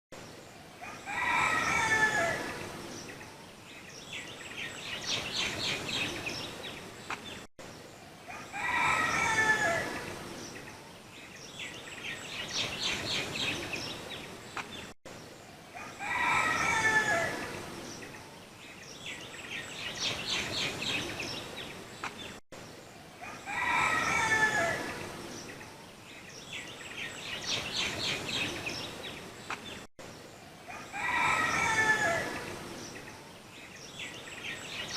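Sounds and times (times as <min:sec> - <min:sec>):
rooster crowing: 0:00.8 - 0:02.5, 0:08.3 - 0:10.0, 0:15.8 - 0:17.5, 0:23.2 - 0:24.9, 0:30.7 - 0:32.4.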